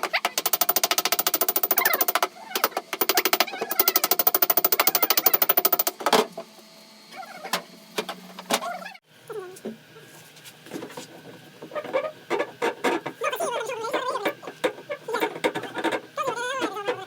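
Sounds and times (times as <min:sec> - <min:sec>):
power tool hammering rapidly: 0:00.0 - 0:06.0.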